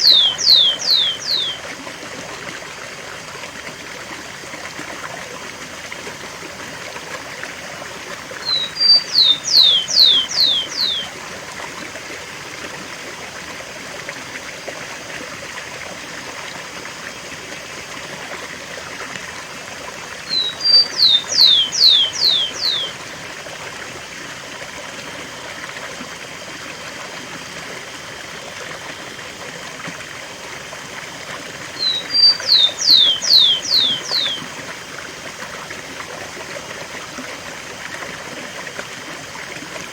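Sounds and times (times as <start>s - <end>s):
sparrow singing whistles: 0.0s - 1.6s, 8.4s - 11.1s, 20.3s - 23.0s, 31.8s - 34.5s
waterfall rushing: 31.8s - 34.4s.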